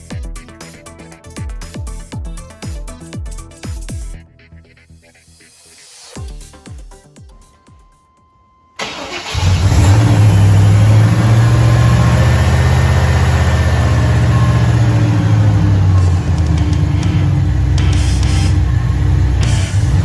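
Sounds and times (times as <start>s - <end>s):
engine starting and running: 8.8s - 20.0s.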